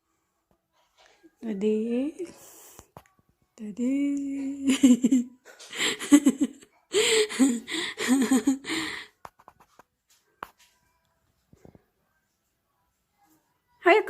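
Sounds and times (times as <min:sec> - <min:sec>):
person giggling: 0:04.4 - 0:09.1.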